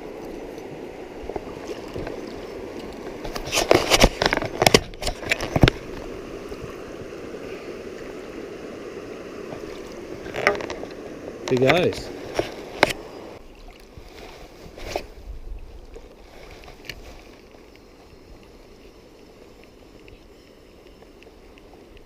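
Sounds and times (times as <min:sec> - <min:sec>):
stream water running: 0:00.0 - 0:22.0
splashing and knocks: 0:09.5 - 0:13.0.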